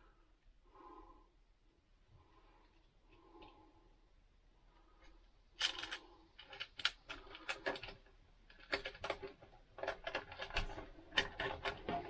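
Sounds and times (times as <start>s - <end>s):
electrical wire rustling and clicking: 5.0s - 12.0s.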